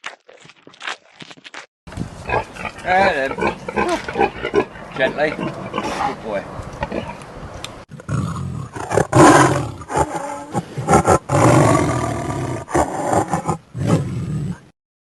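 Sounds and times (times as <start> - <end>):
lion roaring and growling: 2.2 - 6.2, 7.9 - 14.7.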